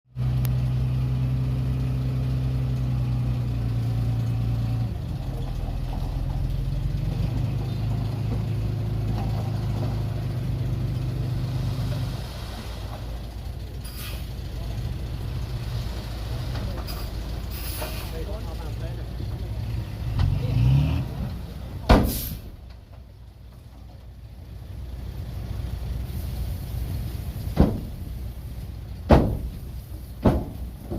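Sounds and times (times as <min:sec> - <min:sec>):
diesel truck engine running: 0:00.1 - 0:30.9
short hisses: 0:13.8 - 0:14.3, 0:16.9 - 0:18.2, 0:22.0 - 0:22.5.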